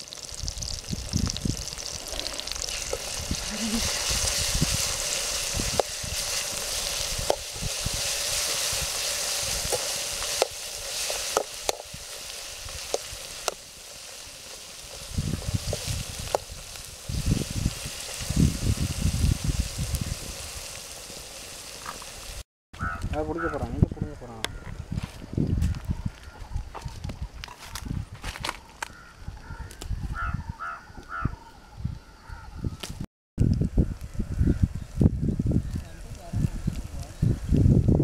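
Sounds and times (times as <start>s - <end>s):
oil sizzling in a pan: 0.0s - 22.4s.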